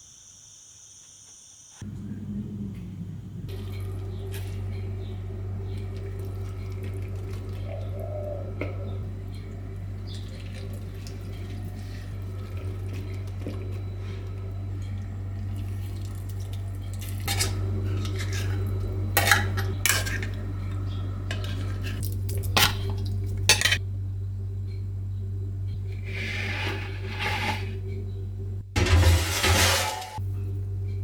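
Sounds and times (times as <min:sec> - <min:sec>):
steady low hum: 0:01.8 - 0:31.0
dishes clinking and scraping: 0:16.8 - 0:23.8, 0:26.0 - 0:27.8, 0:28.8 - 0:30.2.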